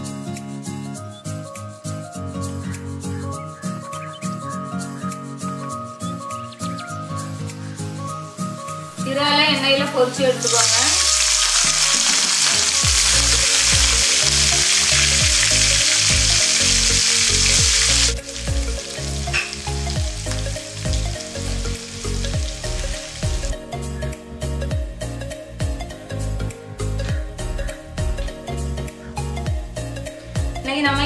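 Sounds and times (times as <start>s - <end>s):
prawns sizzling in hot oil: 10.3s - 23.6s.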